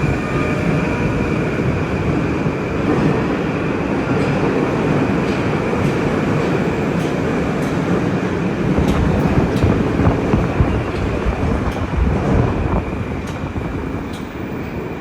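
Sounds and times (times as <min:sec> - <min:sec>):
metro train rumbling: 0:00.0 - 0:15.0.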